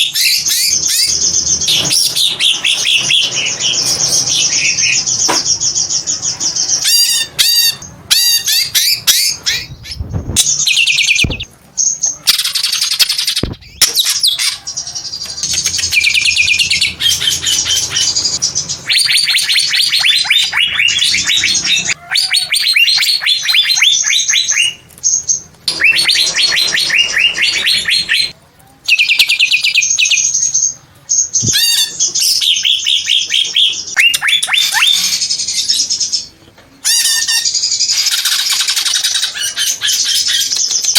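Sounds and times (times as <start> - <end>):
bird singing chattering trills: 22.6 - 36.3.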